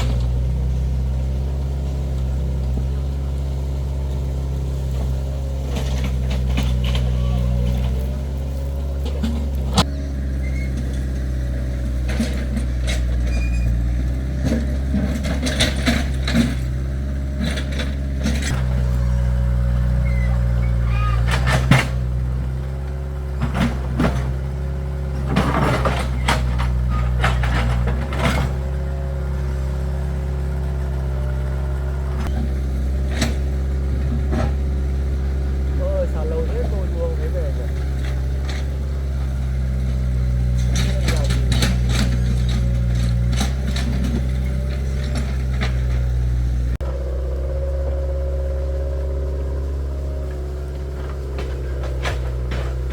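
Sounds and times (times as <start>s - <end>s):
excavator diesel engine running: 0.0s - 52.9s
knocks and clanks: 4.9s - 10.0s, 11.8s - 29.3s, 36.0s - 46.4s, 49.2s - 52.9s.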